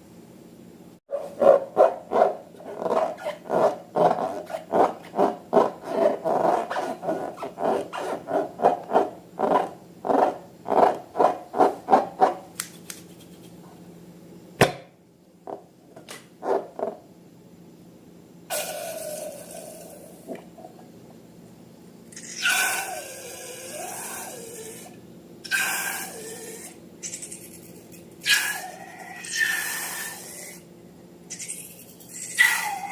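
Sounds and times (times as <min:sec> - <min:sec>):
rubber balloon squeaking: 0:02.6 - 0:12.2
sharp snap: 0:12.6 - 0:13.1.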